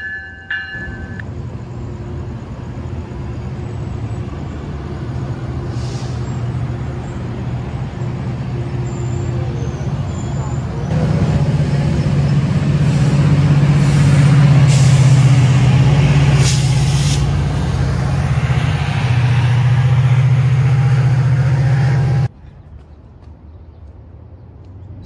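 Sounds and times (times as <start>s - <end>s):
train cars rumbling: 0.0s - 22.4s
diesel locomotive engine hum: 0.0s - 25.0s
faint outdoor ambience: 0.0s - 25.0s
air hissing: 12.7s - 22.3s.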